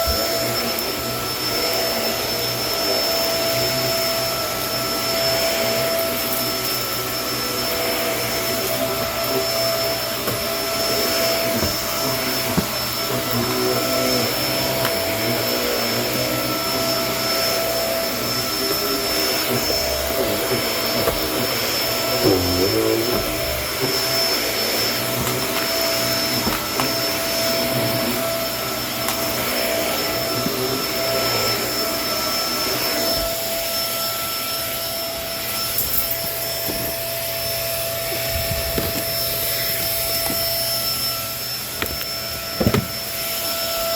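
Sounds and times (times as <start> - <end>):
vacuum cleaner running: 0.0 - 43.9.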